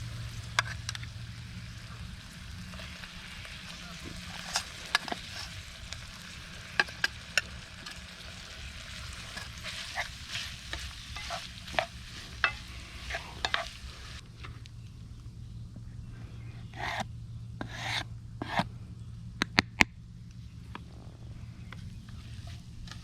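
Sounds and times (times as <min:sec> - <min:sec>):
food sizzling in a pan: 0:00.0 - 0:14.2
utensil scraping a pan: 0:02.7 - 0:14.2, 0:16.7 - 0:17.0, 0:17.6 - 0:18.6.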